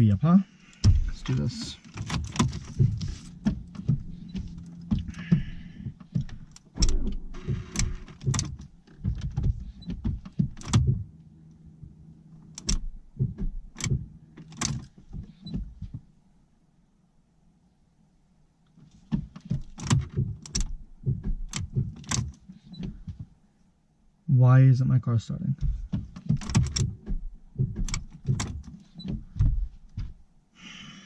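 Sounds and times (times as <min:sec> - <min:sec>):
car door clicks and knocks: 0:00.8 - 0:11.1, 0:11.8 - 0:16.1, 0:18.9 - 0:23.4, 0:25.6 - 0:30.2.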